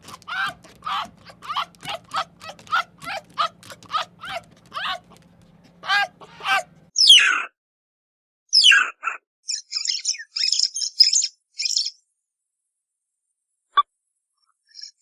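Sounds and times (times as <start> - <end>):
dog yelping: 0.0 - 6.9.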